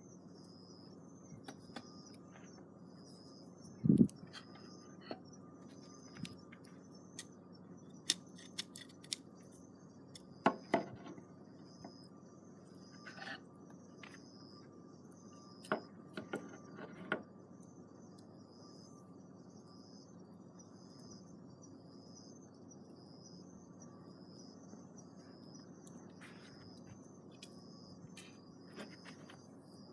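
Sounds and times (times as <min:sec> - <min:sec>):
crickets chirping: 0:00.0 - 0:29.9.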